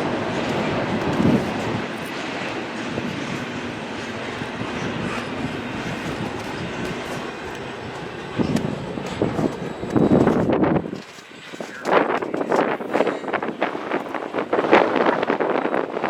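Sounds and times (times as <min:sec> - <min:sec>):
freight train cars rolling: 0:00.0 - 0:14.0.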